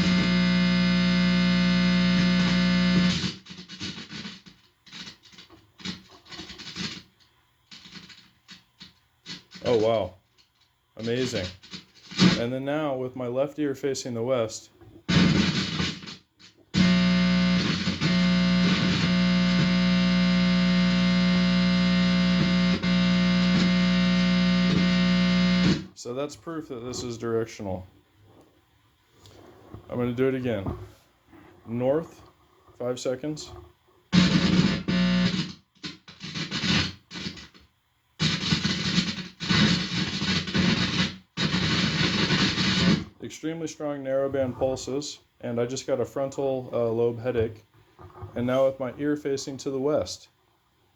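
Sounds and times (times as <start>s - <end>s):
guitar amplifier electrical buzz: 0.0s - 10.1s, 11.0s - 12.6s, 15.0s - 27.7s, 32.9s - 43.5s
crackling static: 0.0s - 50.9s.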